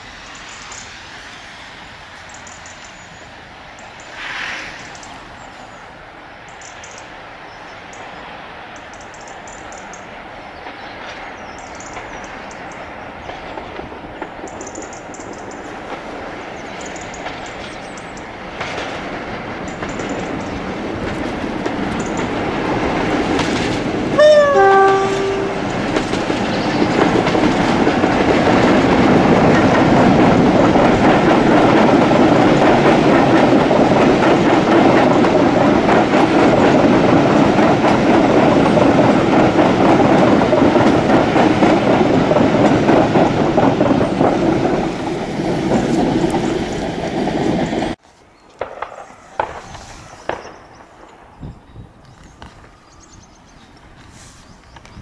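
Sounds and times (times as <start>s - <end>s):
diesel train passing: 0.0s - 48.0s
two-tone train horn: 24.2s - 26.2s.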